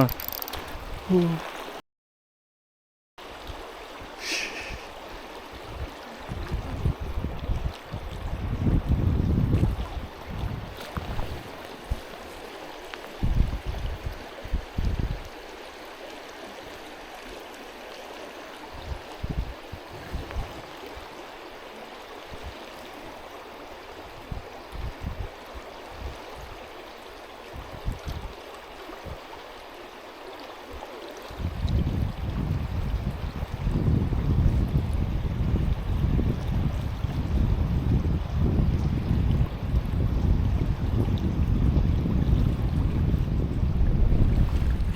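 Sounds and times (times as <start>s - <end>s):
stream water rushing: 0.0s - 1.8s, 3.2s - 44.9s
wind rumble on microphone: 3.4s - 12.3s, 13.1s - 15.4s, 18.7s - 21.1s, 22.3s - 26.8s, 27.4s - 29.4s, 31.2s - 44.9s.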